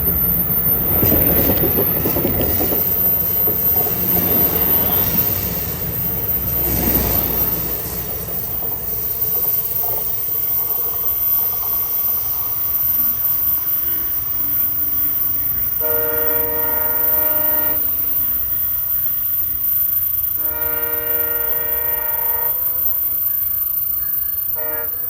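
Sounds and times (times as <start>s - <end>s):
train rumbling on rails: 0.0s - 25.0s
train horn blasts: 15.8s - 18.0s, 20.4s - 22.8s, 24.5s - 25.0s.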